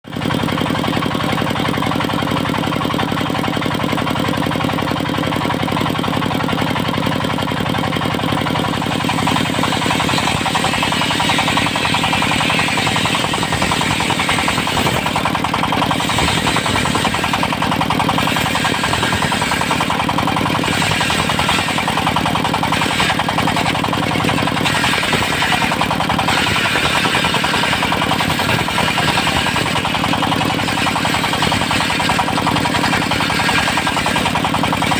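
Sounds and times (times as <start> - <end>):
diesel engine running: 0.0 - 34.9
saw blade cutting wood: 7.3 - 34.9.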